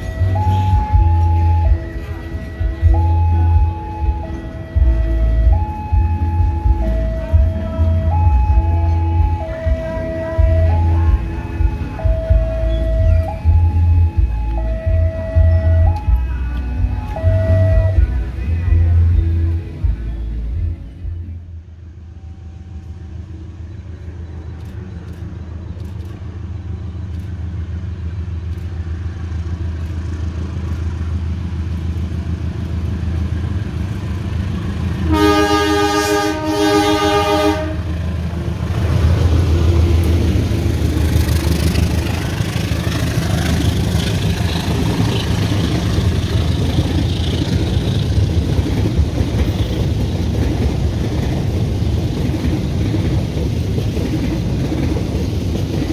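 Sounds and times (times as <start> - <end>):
locomotive engine rumble: 0.0 - 55.9
wheel-on-rail noise: 22.1 - 55.9
train horn blasts: 35.0 - 38.0.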